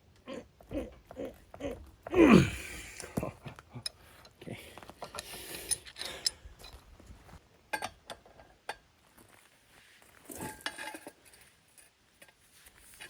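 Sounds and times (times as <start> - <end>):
metal tools clinking: 5.0 - 6.9, 10.2 - 12.4.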